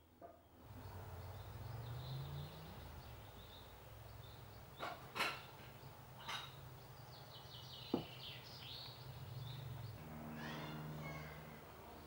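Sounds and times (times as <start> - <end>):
small birds chirping: 0.6 - 11.4.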